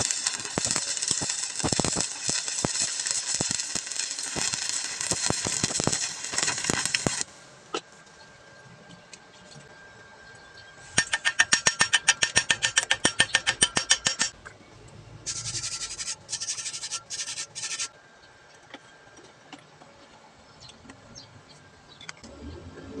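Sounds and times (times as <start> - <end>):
welding arc sputtering and crackling: 0.0 - 7.8, 11.0 - 14.4, 15.3 - 17.9.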